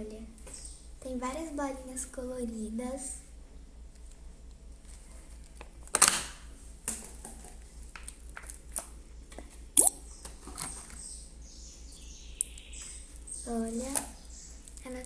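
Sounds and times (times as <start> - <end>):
slime squelching: 9.8 - 10.0.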